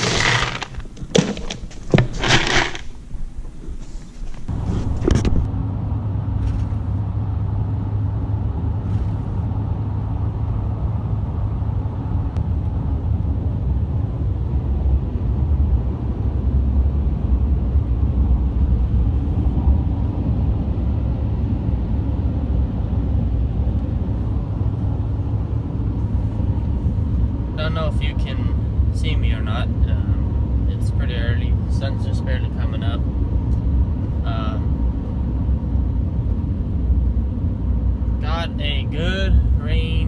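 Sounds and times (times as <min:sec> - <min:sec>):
vehicle engine and road noise: 0:00.0 - 0:40.0.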